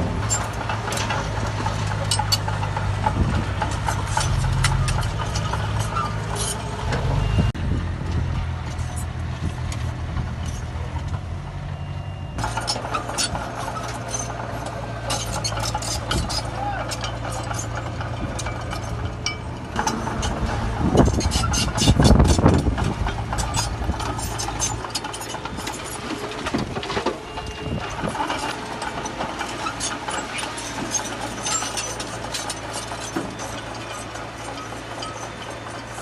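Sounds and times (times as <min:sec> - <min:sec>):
rock and gravel clatter: 0:00.0 - 0:07.5, 0:08.1 - 0:11.4, 0:12.4 - 0:36.0
diesel engine running: 0:00.0 - 0:36.0
distant engine: 0:00.0 - 0:36.0.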